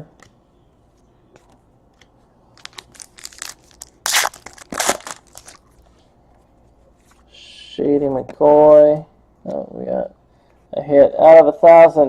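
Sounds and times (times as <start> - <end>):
card packaging scrapes and crinkles: 2.6 - 5.6.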